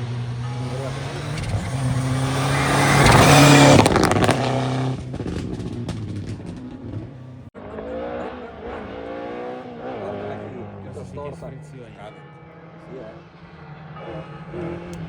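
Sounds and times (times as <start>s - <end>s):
another car engine: 0.0s - 15.0s
rally car engine passing: 0.0s - 15.0s
exhaust cracks: 0.6s - 7.5s.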